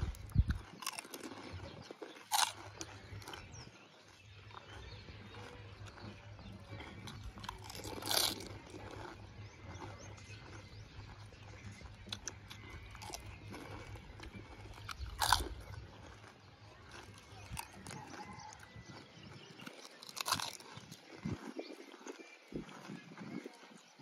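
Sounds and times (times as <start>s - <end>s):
crunching and chewing: 0.0s - 24.0s
small crackles: 0.0s - 24.0s.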